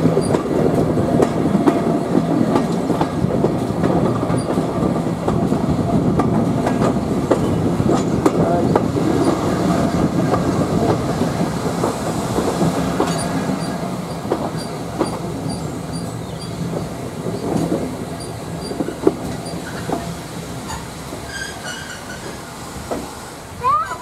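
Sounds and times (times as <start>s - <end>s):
train coach rumbling: 0.0s - 24.0s
wheels clicking over rail joints: 0.0s - 24.0s
faint high squeaks: 20.7s - 22.4s.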